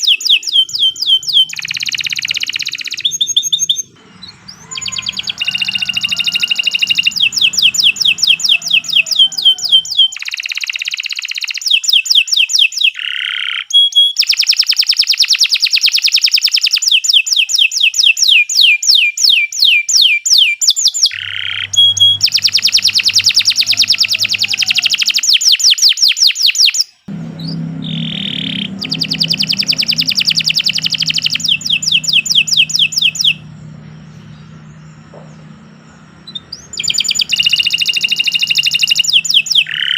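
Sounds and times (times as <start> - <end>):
low hum: 0.0 - 10.1, 21.1 - 25.2, 27.1 - 39.9
canary singing trills: 0.0 - 14.3, 21.0 - 39.9.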